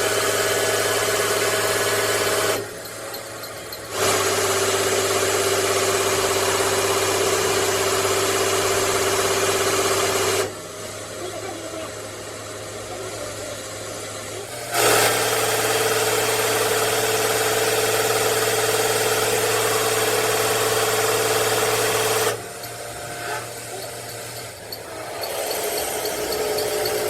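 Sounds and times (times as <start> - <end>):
motor-driven machine whining: 11.2 - 27.0.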